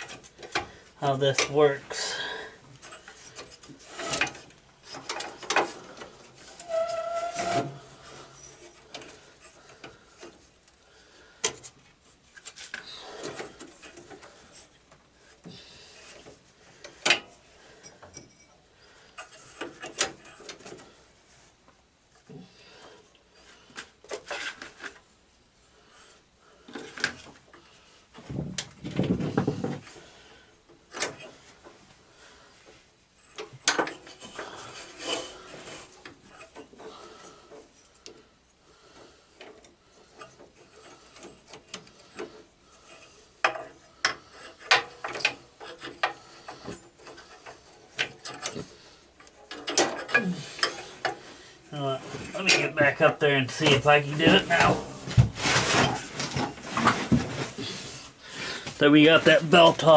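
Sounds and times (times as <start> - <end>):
metal clinks and knocks: 17.8 - 20.8.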